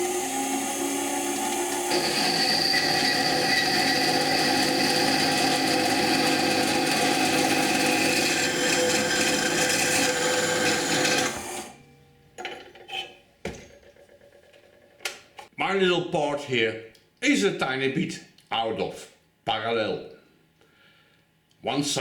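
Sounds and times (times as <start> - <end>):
power tool grinding steel: 0.0 - 11.8.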